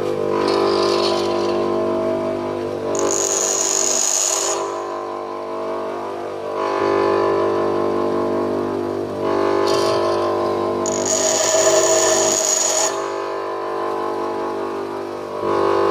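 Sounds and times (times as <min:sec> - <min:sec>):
grinder motor running: 0:00.0 - 0:01.8, 0:02.9 - 0:04.9, 0:09.6 - 0:13.4
high-pitched grinding hiss: 0:00.3 - 0:02.1, 0:02.9 - 0:04.9, 0:09.5 - 0:13.3.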